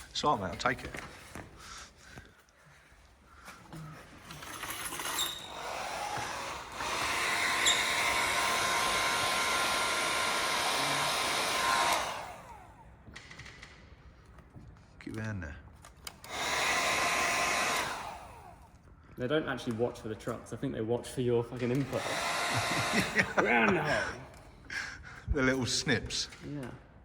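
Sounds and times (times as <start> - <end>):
heat gun blowing: 4.4 - 12.9, 16.2 - 18.7, 21.7 - 24.2.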